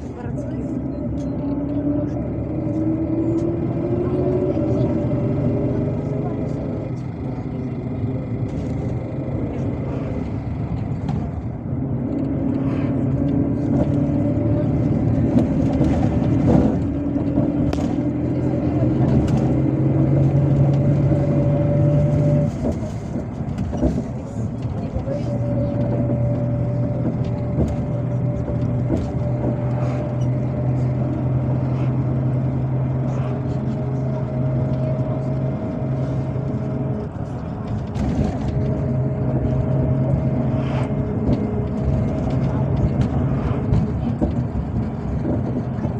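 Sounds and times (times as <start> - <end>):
bus diesel engine running: 0.0 - 45.9
tyre and road noise: 0.0 - 45.9.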